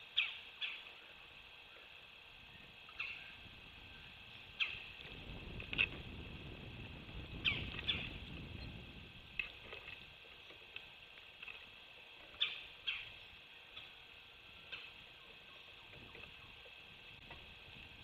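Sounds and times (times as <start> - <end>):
sharp high bird calls: 0.0 - 1.0, 2.5 - 5.0, 7.4 - 8.2, 12.3 - 13.9.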